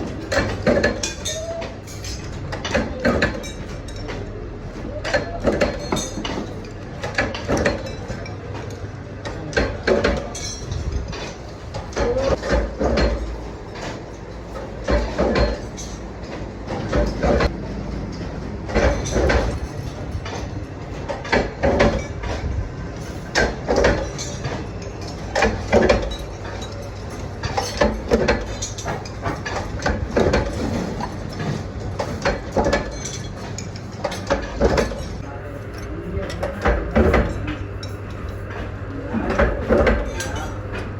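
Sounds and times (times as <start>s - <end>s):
knocks and clatter of hard parts: 0.0s - 40.9s
low machine hum: 0.0s - 40.9s.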